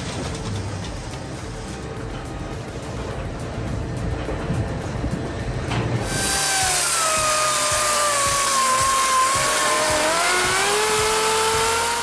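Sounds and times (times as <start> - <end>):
chainsaw cutting wood: 6.0 - 12.0.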